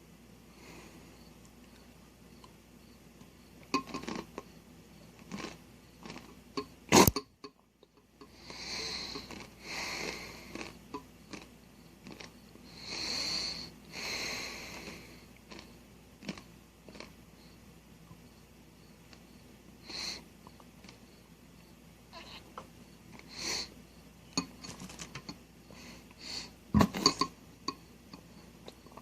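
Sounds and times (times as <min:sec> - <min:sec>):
person chewing: 0:03.8 - 0:04.4, 0:05.2 - 0:06.4, 0:09.1 - 0:12.4, 0:14.9 - 0:17.2
heavy nasal breathing: 0:08.3 - 0:10.8, 0:12.6 - 0:15.7, 0:19.8 - 0:20.3, 0:23.2 - 0:23.8, 0:25.6 - 0:26.6.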